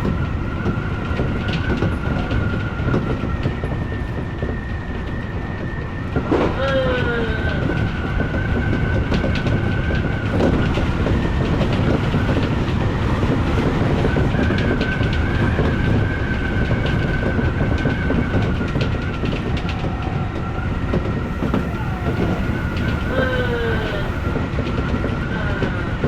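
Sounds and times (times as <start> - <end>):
train rumbling: 0.0 - 26.0
wheels clicking over rails: 7.5 - 25.8.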